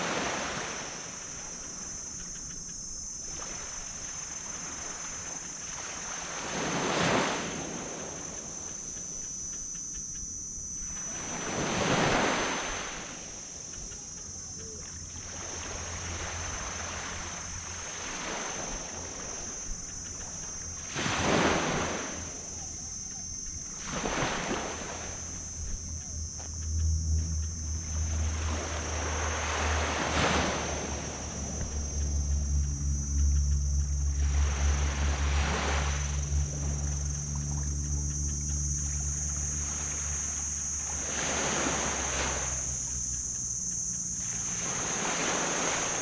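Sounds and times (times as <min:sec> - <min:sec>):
waves breaking on sand beach: 0:00.0 - 0:09.1, 0:10.8 - 0:25.4, 0:27.8 - 0:32.5, 0:34.2 - 0:37.6, 0:39.5 - 0:43.3, 0:43.9 - 0:46.0
low engine hum: 0:00.0 - 0:46.0.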